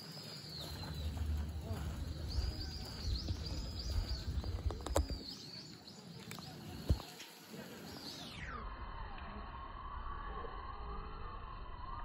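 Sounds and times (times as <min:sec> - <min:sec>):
small bird chirping: 0:00.0 - 0:08.6
low rumble: 0:00.5 - 0:05.2.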